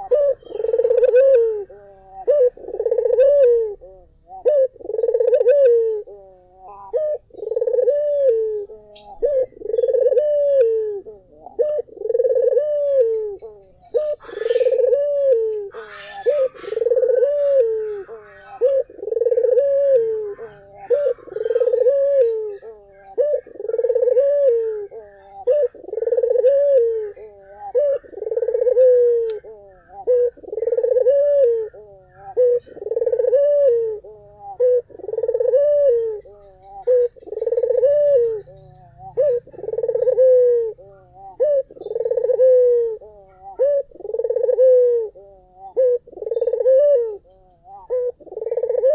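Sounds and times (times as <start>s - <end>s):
dove cooing: 0.0s - 48.9s.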